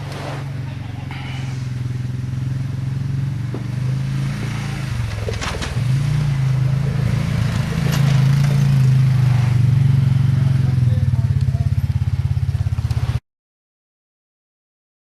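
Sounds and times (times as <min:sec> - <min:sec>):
riding lawnmower engine: 0:00.0 - 0:13.2
brief rattle: 0:05.1 - 0:05.9.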